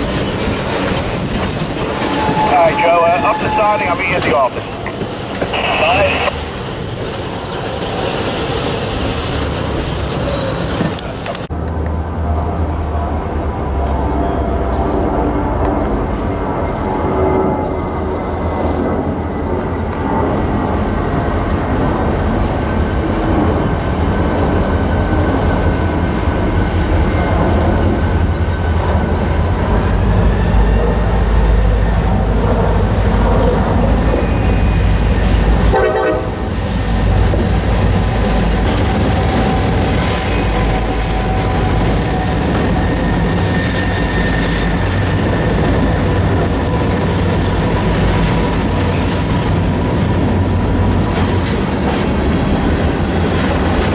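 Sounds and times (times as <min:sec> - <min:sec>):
freight train rumbling: 0:00.0 - 0:53.9
high-pitched wheel squeal: 0:01.8 - 0:04.7, 0:16.3 - 0:33.2, 0:38.8 - 0:49.5.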